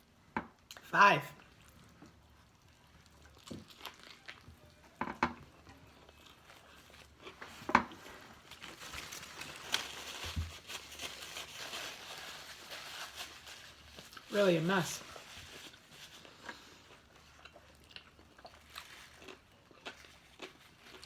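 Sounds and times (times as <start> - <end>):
person chewing with mouth smacks: 1.4 - 8.1, 15.8 - 21.0
paper crinkling: 6.3 - 16.6.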